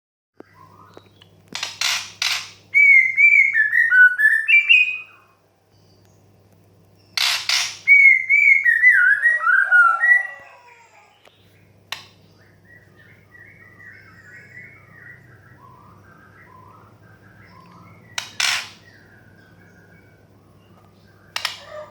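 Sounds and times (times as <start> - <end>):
bird harsh rasping calls: 7.2 - 11.2, 16.5 - 19.2, 21.3 - 21.9.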